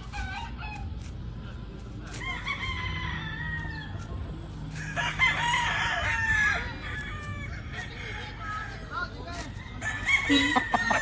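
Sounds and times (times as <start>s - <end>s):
rooster crowing: 9.8s - 11.0s.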